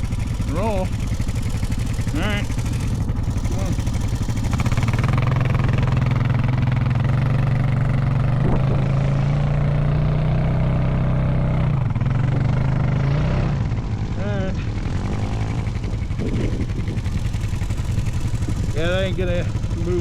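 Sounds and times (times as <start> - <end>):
atv engine revving: 0.0 - 20.0.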